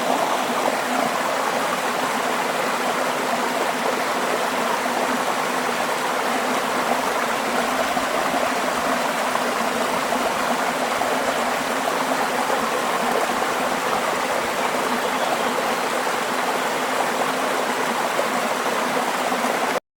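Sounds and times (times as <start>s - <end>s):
flowing water rushing: 0.0s - 19.8s.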